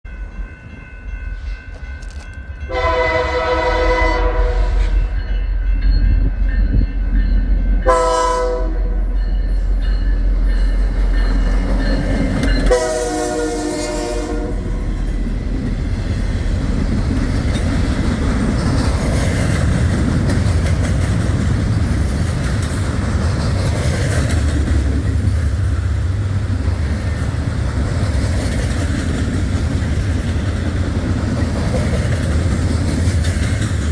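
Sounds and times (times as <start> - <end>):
train wheels on rails: 0.1 - 33.9
train horn: 2.6 - 5.2, 7.8 - 9.3, 12.6 - 15.0.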